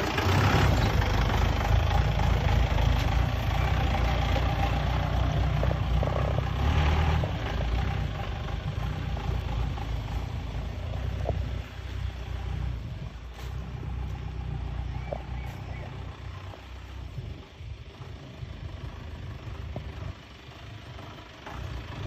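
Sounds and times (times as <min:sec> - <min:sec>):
jeep engine rumbling: 0:00.0 - 0:22.0.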